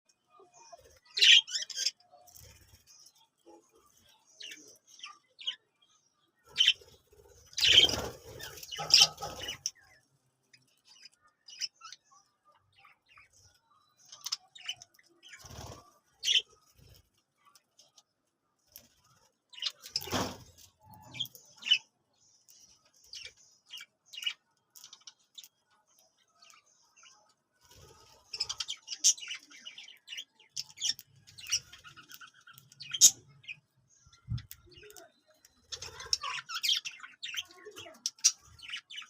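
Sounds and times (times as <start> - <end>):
parrots chirping: 7.5 - 10.0.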